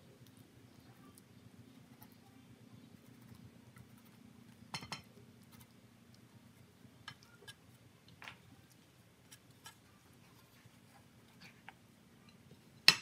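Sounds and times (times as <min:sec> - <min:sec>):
low steady hum: 0:00.0 - 0:13.0
faint clicks and taps: 0:07.0 - 0:13.0.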